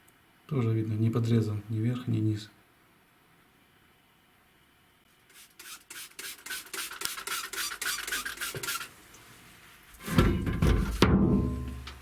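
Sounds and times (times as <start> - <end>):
hand rubbing a part: 5.1 - 10.2.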